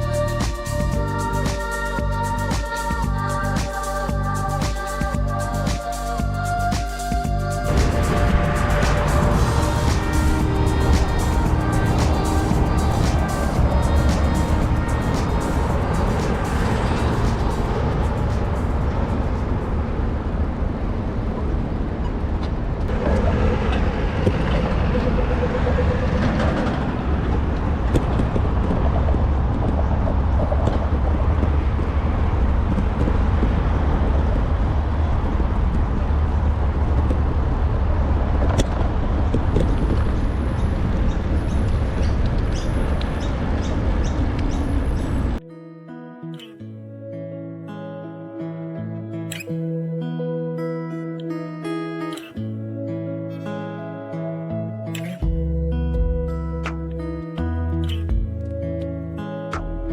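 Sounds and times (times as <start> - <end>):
road traffic: 0.0 - 45.4
wind rumble on microphone: 7.2 - 45.4.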